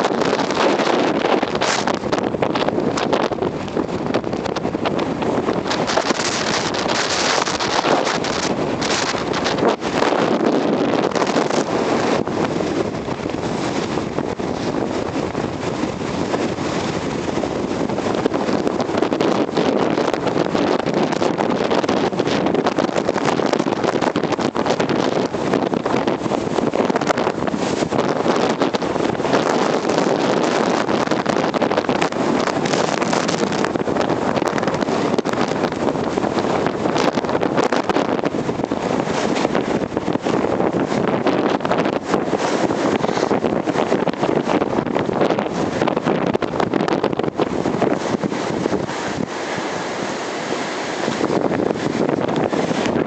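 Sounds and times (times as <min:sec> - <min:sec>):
blizzard wind on microphone: 0:00.0 - 0:53.0
small crackles: 0:00.1 - 0:11.7.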